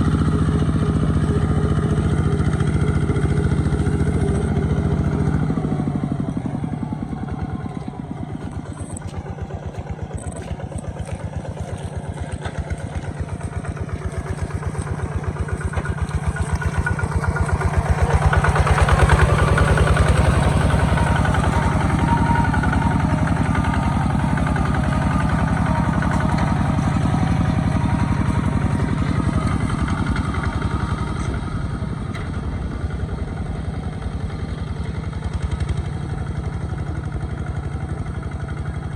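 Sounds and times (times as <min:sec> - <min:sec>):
tractor engine chugging: 0:00.0 - 0:38.9.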